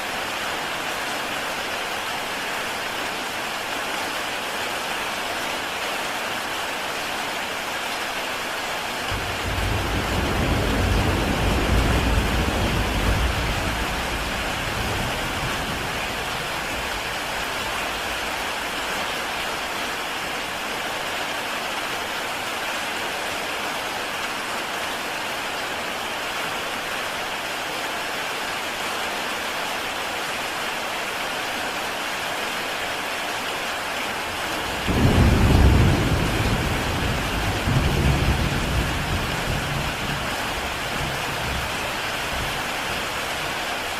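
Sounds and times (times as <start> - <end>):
heavy rain on a tile roof: 0.0 - 43.9
low thunder rumbles: 9.1 - 18.8, 34.3 - 43.2.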